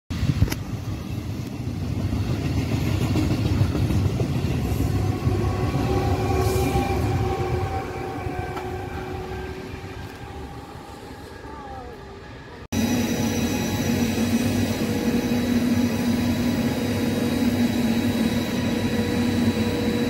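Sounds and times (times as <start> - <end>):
passenger train rumbling past: 0.1 - 20.0
steady high tone: 4.9 - 20.0.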